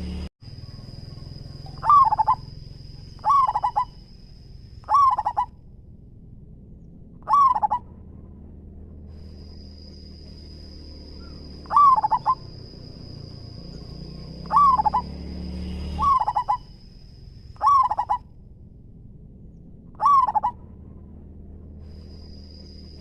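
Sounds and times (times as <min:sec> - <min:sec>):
dove cooing: 0:00.5 - 0:04.0, 0:04.8 - 0:05.5, 0:07.2 - 0:08.2, 0:11.2 - 0:15.2, 0:16.0 - 0:16.8, 0:17.6 - 0:18.3, 0:20.0 - 0:20.6.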